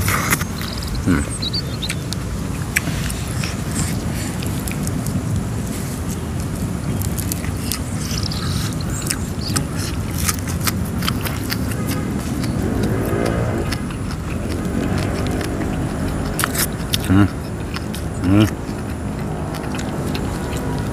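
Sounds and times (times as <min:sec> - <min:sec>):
steady low rumble: 0:00.0 - 0:20.9
wet chewing: 0:00.0 - 0:20.9
lip-smacking clicks: 0:06.3 - 0:20.9
rising and falling pitched tone: 0:12.5 - 0:17.0.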